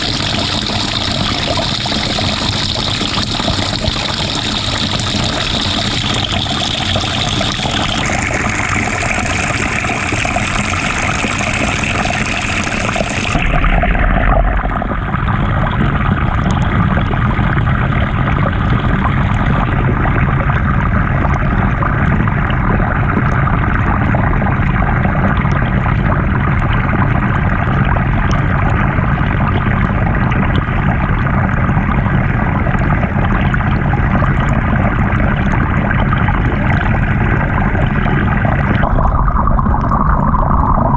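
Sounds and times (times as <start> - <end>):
water churning in washing machine: 0.0 - 40.9.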